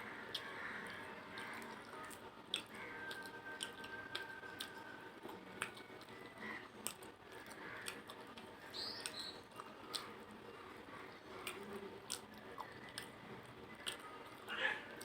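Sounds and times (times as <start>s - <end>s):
wet chewing and lip smacks: 0.3s - 15.0s.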